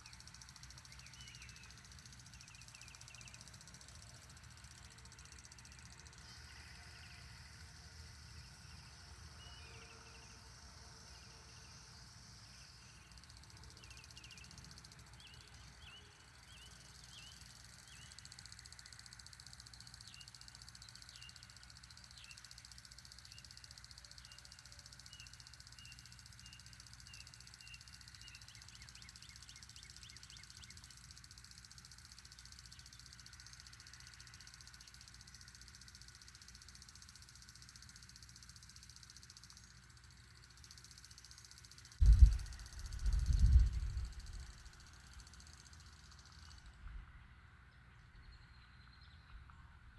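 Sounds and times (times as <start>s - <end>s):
bird chirping: 0.0s - 4.0s.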